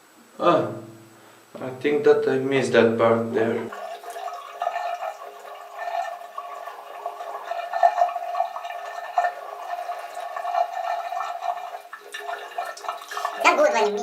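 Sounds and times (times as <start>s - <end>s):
tap water running into sink: 3.3s - 14.0s.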